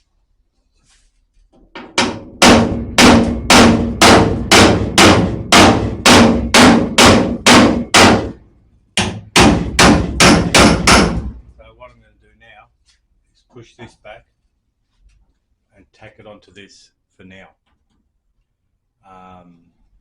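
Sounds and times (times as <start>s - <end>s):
hammer ringing on sheet steel: 1.8s - 8.4s, 9.0s - 11.4s.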